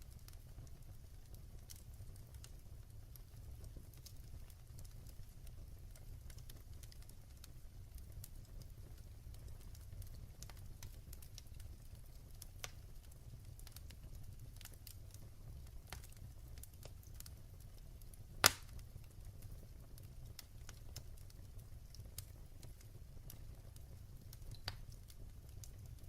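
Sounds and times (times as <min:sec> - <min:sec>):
fire crackles: 0:00.0 - 0:26.0
fire rumbling in a fireplace: 0:00.0 - 0:26.0
loud fire pop: 0:18.4 - 0:18.7.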